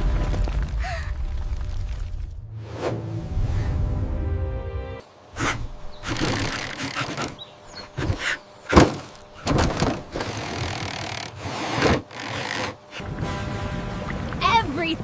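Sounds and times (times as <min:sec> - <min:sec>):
cartoon crashing thuds: 0:08.0 - 0:10.2.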